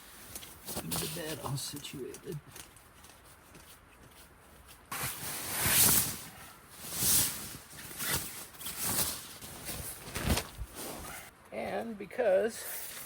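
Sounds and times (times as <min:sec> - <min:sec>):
bedding rustling and shuffling: 0:00.0 - 0:11.3.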